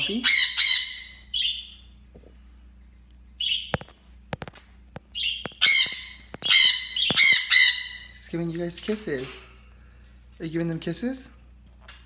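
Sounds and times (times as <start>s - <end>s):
parrot squawking: 0.0s - 1.8s, 3.4s - 3.8s, 5.1s - 8.3s.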